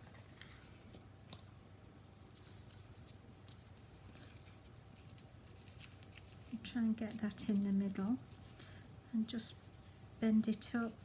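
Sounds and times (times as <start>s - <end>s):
ribbon rustling: 0.0s - 8.8s
low room hum: 0.0s - 11.0s.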